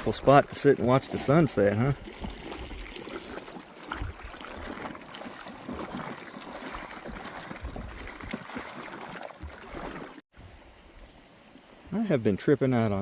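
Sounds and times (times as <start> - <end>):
small waves lapping on gravel: 0.0 - 10.2.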